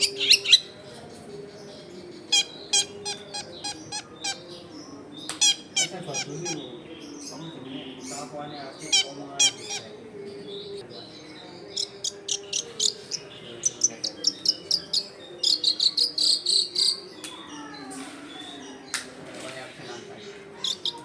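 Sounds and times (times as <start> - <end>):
low background noise: 0.0 - 21.0
bird singing sharp high chirps: 10.6 - 17.6.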